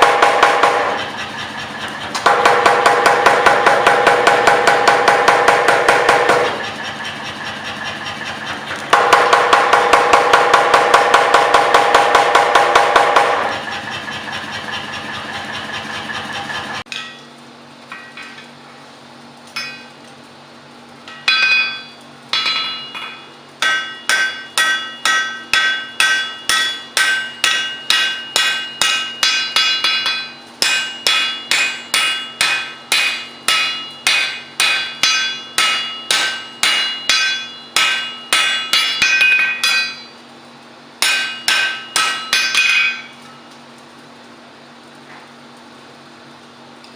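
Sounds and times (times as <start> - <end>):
power hammer motor hum: 0.0 - 16.8
power hammer pounding steel: 0.0 - 16.9, 22.4 - 40.1, 41.0 - 43.1
hand hammer ringing on anvil: 21.3 - 40.2, 41.0 - 43.2.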